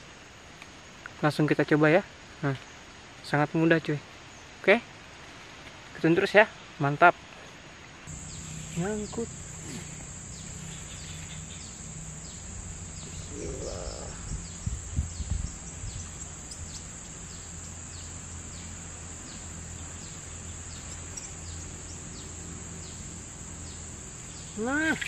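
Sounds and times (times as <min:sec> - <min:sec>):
high insect drone: 0:08.1 - 0:25.0.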